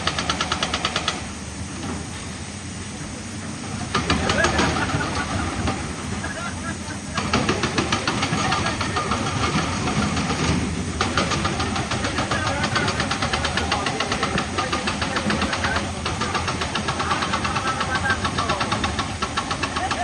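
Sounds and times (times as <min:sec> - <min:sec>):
rapid even knocking: 0:00.0 - 0:01.3, 0:07.1 - 0:20.0
heavy machinery engine: 0:00.0 - 0:20.0.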